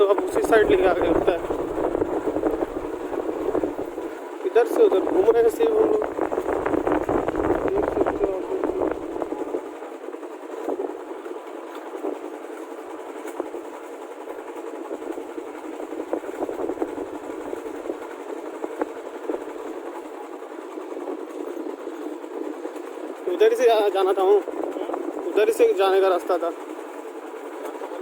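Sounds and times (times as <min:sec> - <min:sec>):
road noise: 0:00.0 - 0:09.6.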